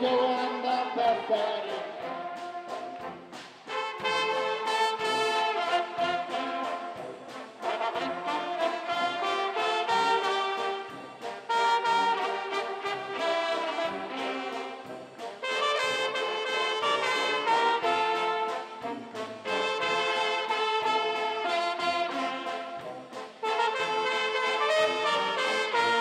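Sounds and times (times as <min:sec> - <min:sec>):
pep band playing brass tune: 0:00.0 - 0:26.0.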